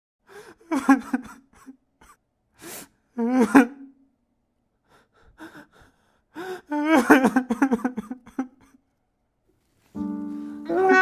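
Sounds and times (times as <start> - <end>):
man sobbing: 0.3 - 2.2, 3.1 - 4.0, 4.9 - 8.8
sharp in-breath: 2.6 - 3.0.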